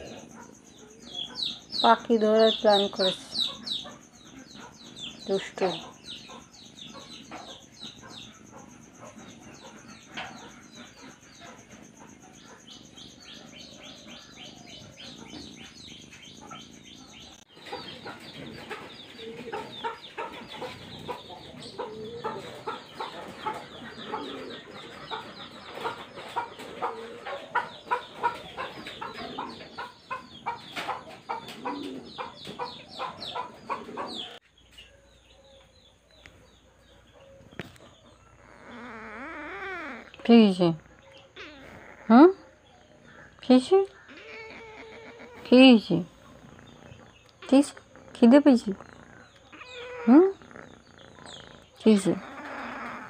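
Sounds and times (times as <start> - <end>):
chickens clucking: 0.0 - 53.0.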